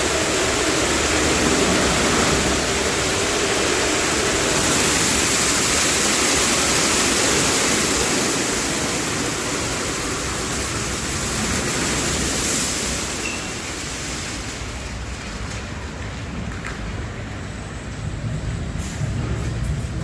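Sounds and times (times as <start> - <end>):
car wash water spray: 0.0 - 20.0.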